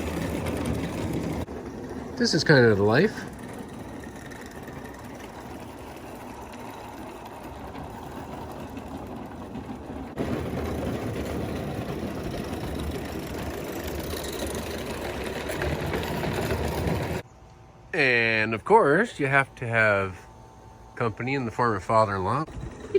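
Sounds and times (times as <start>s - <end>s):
steam locomotive chuffing and rattling: 0.0s - 17.2s.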